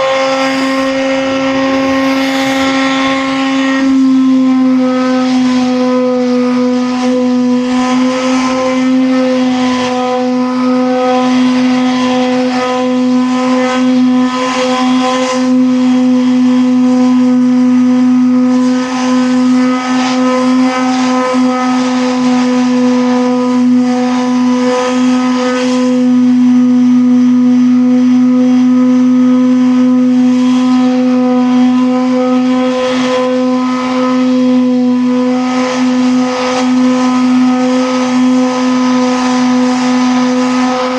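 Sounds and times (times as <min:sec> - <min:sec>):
rough hiss: 0:00.0 - 0:03.3
machine humming: 0:00.0 - 0:04.5.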